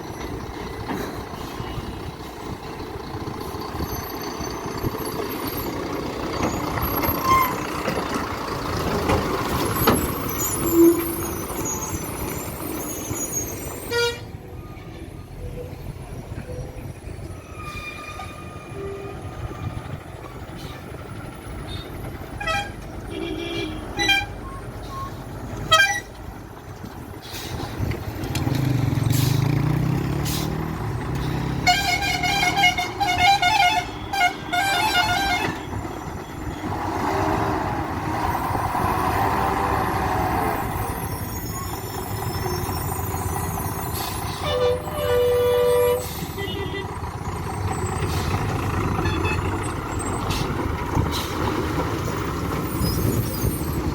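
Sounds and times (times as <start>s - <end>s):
diesel truck engines under load: 0.0s - 53.9s
truck horn toots: 13.9s - 14.3s, 21.7s - 24.5s, 25.6s - 26.1s, 31.4s - 35.8s, 44.4s - 47.0s, 49.0s - 49.6s
long pulsing horn: 31.6s - 35.6s.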